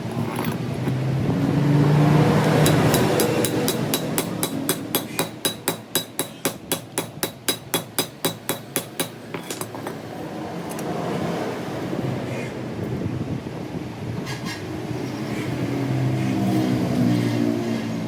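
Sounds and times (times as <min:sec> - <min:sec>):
workshop hum: 0:00.0 - 0:12.2
hammer striking metal: 0:02.4 - 0:10.0.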